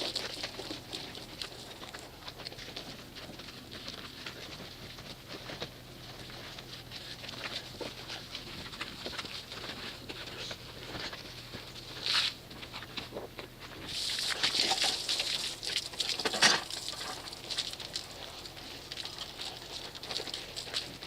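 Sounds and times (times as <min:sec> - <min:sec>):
water pattering and splashing: 0:00.0 - 0:02.8, 0:13.8 - 0:21.0.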